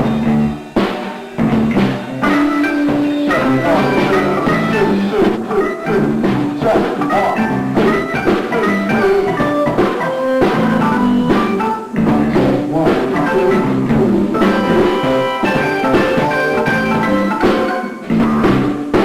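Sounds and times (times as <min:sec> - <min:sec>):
drum kit beat: 0:00.0 - 0:19.0
funk band playing: 0:00.0 - 0:19.0.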